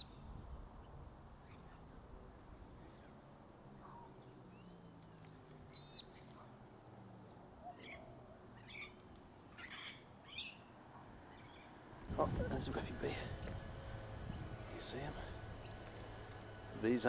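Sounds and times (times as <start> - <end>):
wild birds calling: 1.4 - 17.0.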